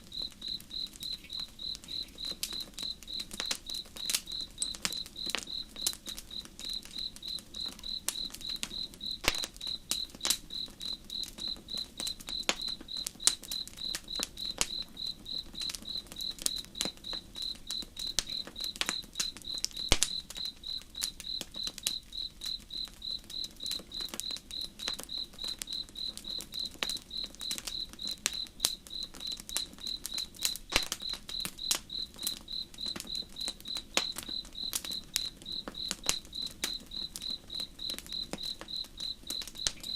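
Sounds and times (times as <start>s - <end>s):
campfire crackling and popping: 0.0s - 39.9s
crickets chirping: 0.0s - 39.9s.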